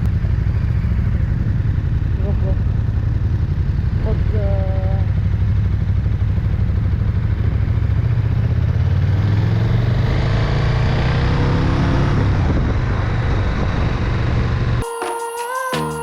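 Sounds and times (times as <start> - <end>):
motorcycle engine accelerating: 0.0 - 14.8
wind rush over microphone: 12.1 - 14.8.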